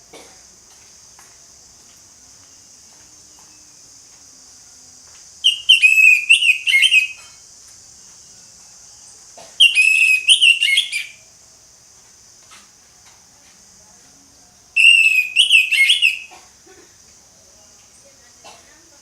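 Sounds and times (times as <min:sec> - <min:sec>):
faint high hiss: 0:00.0 - 0:19.0
thrush singing whistled notes: 0:05.4 - 0:07.4, 0:08.4 - 0:11.3, 0:14.8 - 0:16.4.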